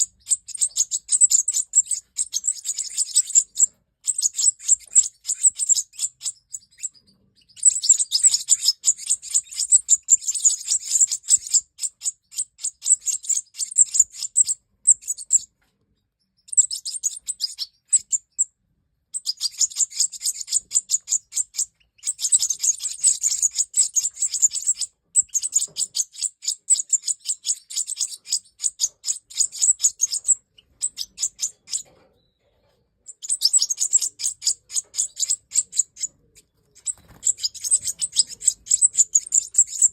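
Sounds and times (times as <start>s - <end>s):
goldfinch singing: 0.0s - 15.5s, 16.3s - 18.5s, 19.2s - 39.9s.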